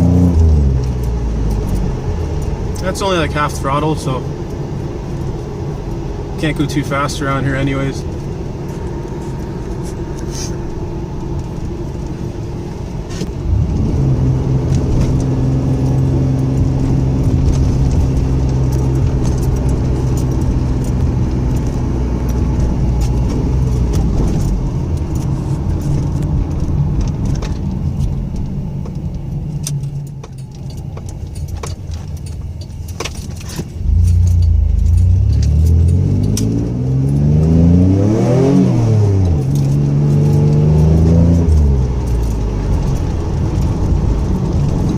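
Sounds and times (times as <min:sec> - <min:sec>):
car engine running: 0:00.0 - 0:44.9
light clicking and rattling: 0:15.0 - 0:37.2.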